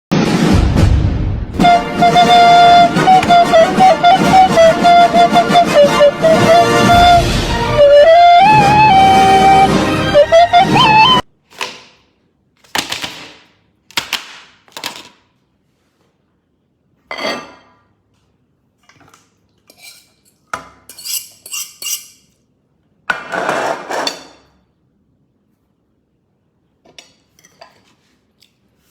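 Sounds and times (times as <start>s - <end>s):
dishes and cutlery clattering: 17.1s - 17.9s, 18.8s - 22.3s, 26.9s - 28.0s.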